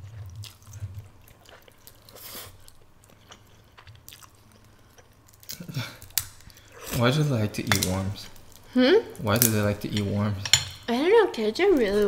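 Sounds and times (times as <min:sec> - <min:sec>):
person chewing noodles: 0:00.0 - 0:06.8.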